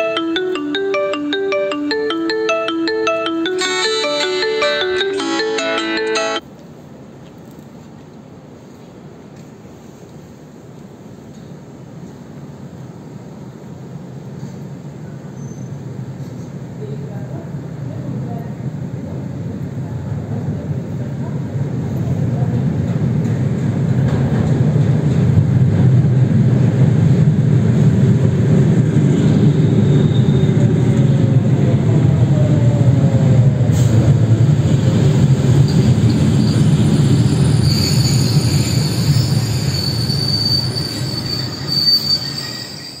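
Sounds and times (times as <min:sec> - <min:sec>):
train wheels rumbling on rail: 0:10.9 - 0:43.0
high brake squeal: 0:15.3 - 0:16.5, 0:29.5 - 0:30.8, 0:35.6 - 0:43.0.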